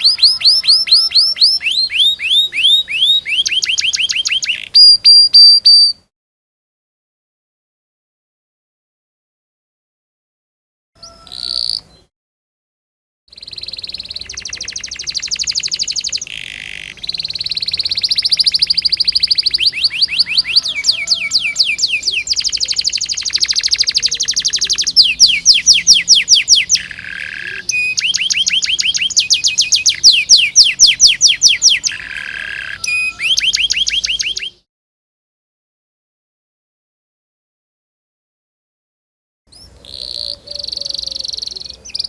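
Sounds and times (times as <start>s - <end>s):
canary singing trills: 0.0s - 6.0s, 11.0s - 12.1s, 13.3s - 34.7s, 39.5s - 42.0s.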